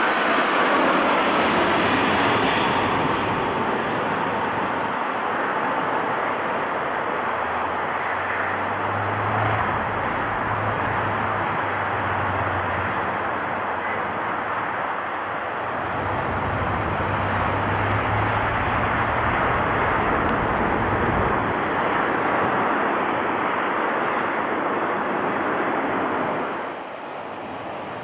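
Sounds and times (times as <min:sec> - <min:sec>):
jet airliner engine roar: 0:00.0 - 0:28.0.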